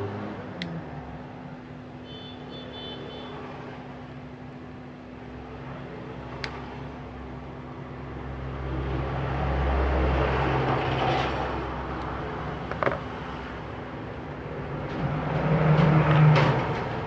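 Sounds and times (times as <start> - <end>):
passing vehicle engine rumble: 5.4 - 17.0.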